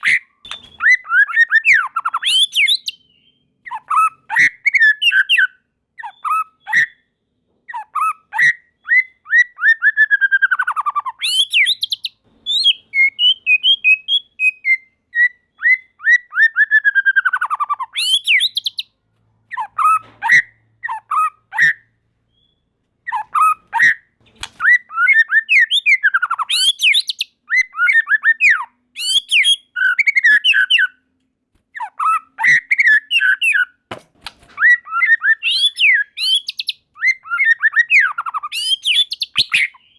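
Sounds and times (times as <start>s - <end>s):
songbird whistling rapid notes: 0.0s - 3.2s, 8.0s - 18.8s, 24.6s - 30.9s, 34.6s - 39.9s.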